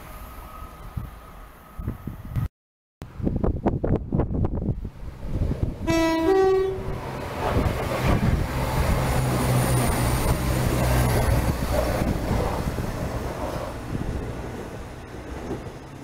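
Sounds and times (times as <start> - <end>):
train engines humming: 4.5 - 16.0
two-tone train horn: 5.8 - 7.0
wheels rumbling and clattering: 7.0 - 16.0.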